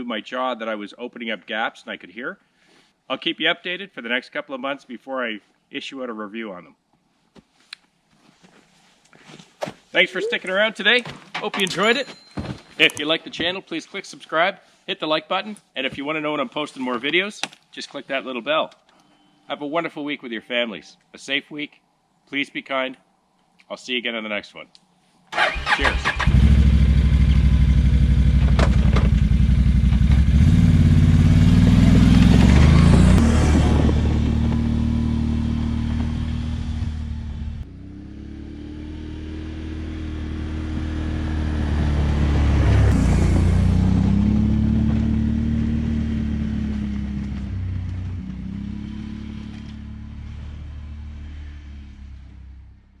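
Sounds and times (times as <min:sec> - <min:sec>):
atv engine running: 0:26.2 - 0:52.6.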